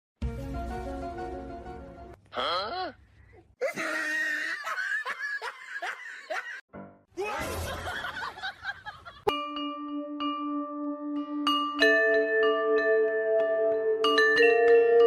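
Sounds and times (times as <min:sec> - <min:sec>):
person laughing: 0:03.6 - 0:06.6.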